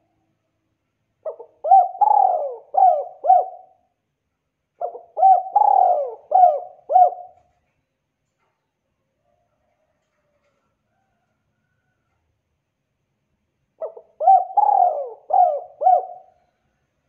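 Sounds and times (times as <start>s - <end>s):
dove cooing: 1.2s - 3.9s, 4.8s - 7.5s, 13.8s - 16.5s.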